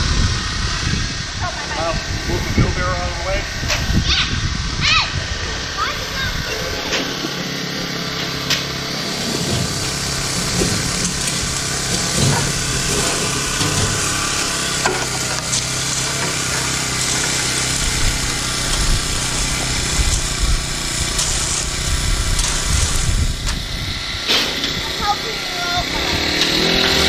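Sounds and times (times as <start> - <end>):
small petrol engine running: 0.0 - 27.0
scraping: 5.9 - 27.0.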